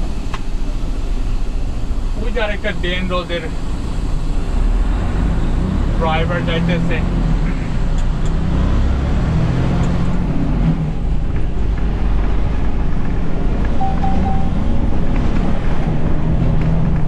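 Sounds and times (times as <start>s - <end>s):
truck engine and road noise: 0.0s - 17.0s
high beeps: 13.8s - 14.7s.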